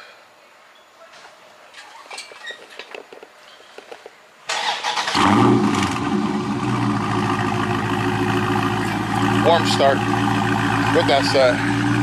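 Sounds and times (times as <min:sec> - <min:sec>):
car starter cranking: 0:04.5 - 0:06.1
car engine idling: 0:05.1 - 0:12.0.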